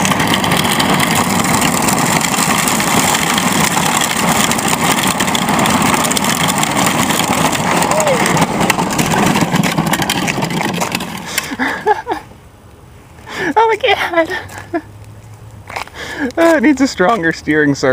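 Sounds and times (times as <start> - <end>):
toy truck wheels rolling: 0.0 - 12.2.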